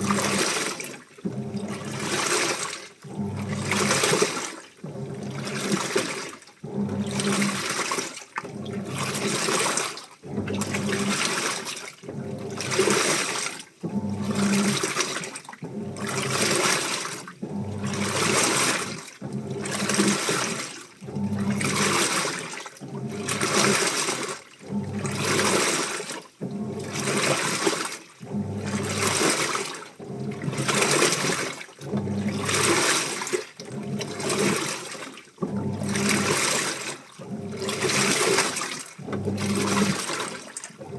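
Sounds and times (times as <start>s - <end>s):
low motor hum: 0.0s - 0.5s, 1.2s - 2.3s, 3.0s - 4.2s, 4.8s - 6.0s, 6.6s - 7.8s, 13.8s - 14.9s, 17.3s - 20.3s, 21.0s - 22.0s, 28.2s - 29.2s, 31.9s - 32.7s, 35.4s - 36.4s, 39.0s - 40.2s
water sloshing in washing machine: 0.0s - 40.9s.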